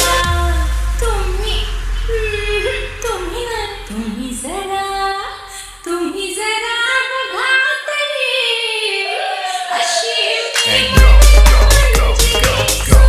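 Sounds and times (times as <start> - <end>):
low bass: 0.0 - 5.5, 10.7 - 13.0.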